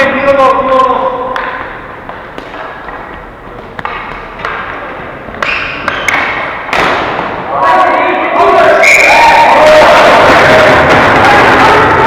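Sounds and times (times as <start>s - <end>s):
rink hubbub: 0.0s - 12.0s
sticks and ball knocking: 0.8s - 7.4s.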